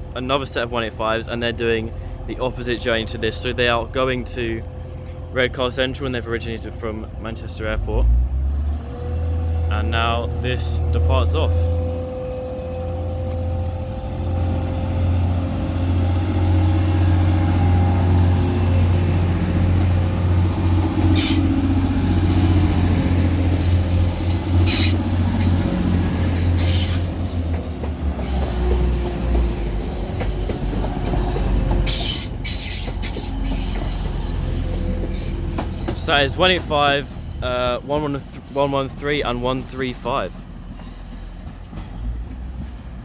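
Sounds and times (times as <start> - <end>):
diesel train engine hum and whine: 0.0 - 43.0
train wheel clanks: 17.3 - 36.8
train wheel squeals: 19.8 - 36.3.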